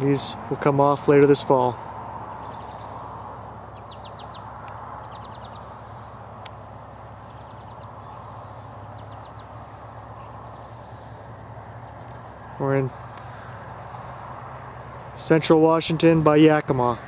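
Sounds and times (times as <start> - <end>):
low outdoor background noise: 0.0 - 17.0
small bird singing trills: 2.3 - 6.2, 7.2 - 14.2.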